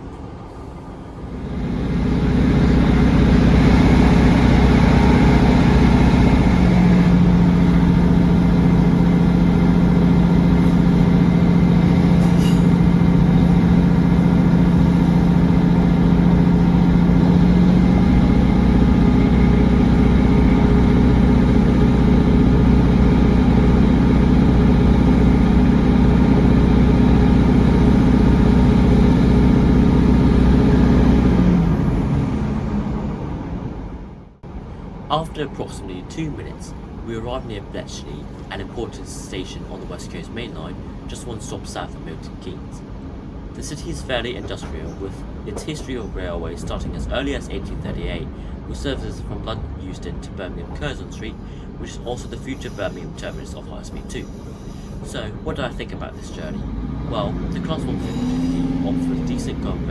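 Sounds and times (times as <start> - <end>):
train diesel engine droning: 0.0 - 59.9
wheel and rail rumble: 0.0 - 59.9
low steady hum: 34.1 - 59.9.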